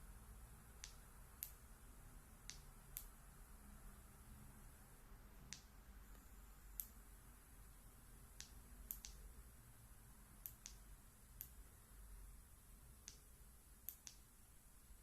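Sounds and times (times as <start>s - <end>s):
faint sharp ticks: 8.4s - 9.2s, 13.8s - 14.2s.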